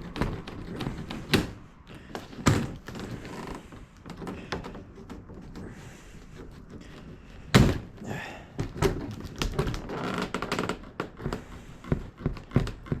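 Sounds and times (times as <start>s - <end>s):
loud knock on box: 7.6s - 7.9s.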